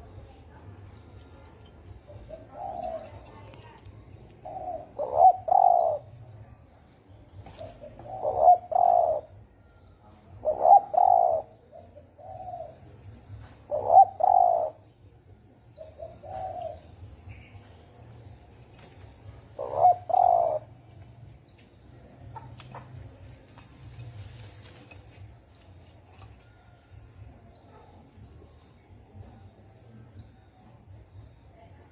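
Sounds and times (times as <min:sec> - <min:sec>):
dove cooing: 0:01.9 - 0:06.5, 0:07.3 - 0:09.4, 0:10.2 - 0:15.0, 0:15.7 - 0:17.5, 0:18.8 - 0:20.8.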